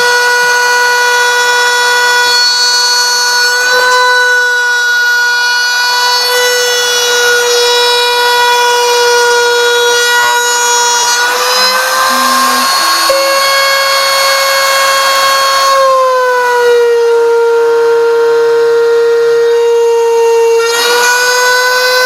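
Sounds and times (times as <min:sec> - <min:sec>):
router spindle whining: 0:05.6 - 0:15.9
motors humming: 0:11.2 - 0:13.6.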